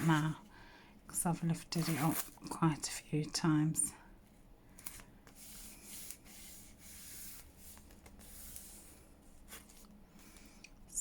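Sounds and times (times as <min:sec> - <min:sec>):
paper rubbing and scuffing: 0:01.8 - 0:02.4, 0:04.8 - 0:09.8.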